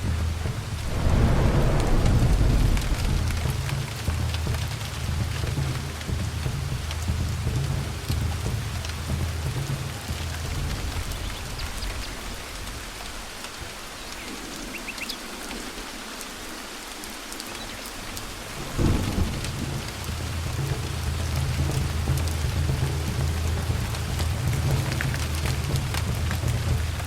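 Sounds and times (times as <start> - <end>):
thunder rumbling: 0.0 - 14.6, 18.2 - 27.0
rain falling: 0.0 - 27.0
loud thunderclap: 0.4 - 6.9, 18.6 - 27.0.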